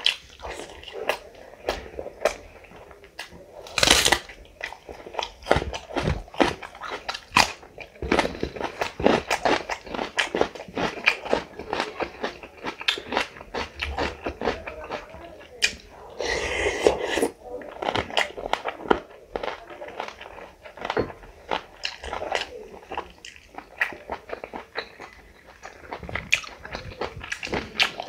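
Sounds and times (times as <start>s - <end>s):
crunchy bite: 3.6s - 4.4s
wet chewing and lip smacks: 20.8s - 28.0s.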